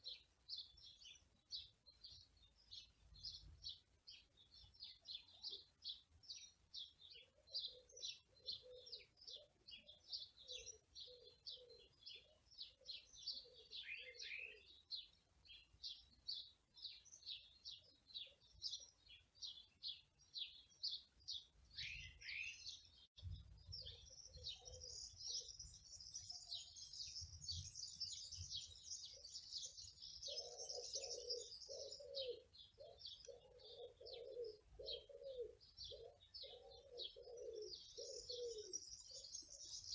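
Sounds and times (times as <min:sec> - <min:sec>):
small birds chirping: 0:00.0 - 0:39.9
lower repeated bird call: 0:04.9 - 0:19.6, 0:23.7 - 0:39.9.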